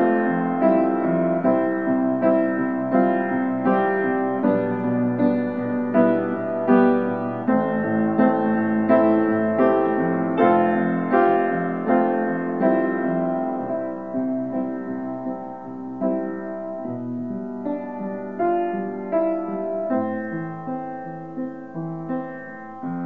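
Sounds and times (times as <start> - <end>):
slow gentle piano melody: 0.0 - 23.0.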